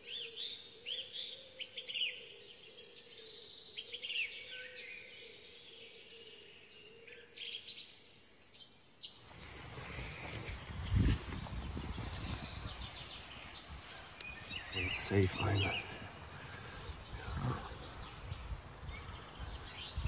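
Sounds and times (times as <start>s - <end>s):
wild birds chirping: 0.0s - 20.0s.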